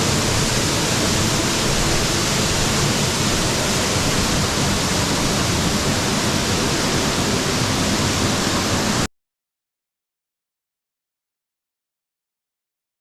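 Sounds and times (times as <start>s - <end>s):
waterfall roaring: 0.0s - 9.1s.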